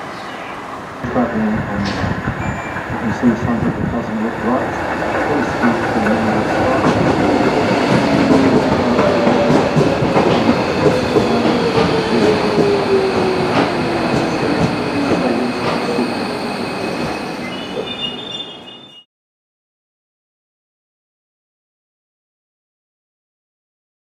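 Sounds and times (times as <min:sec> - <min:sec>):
high brake squeal: 0:02.4 - 0:03.0, 0:15.8 - 0:19.1.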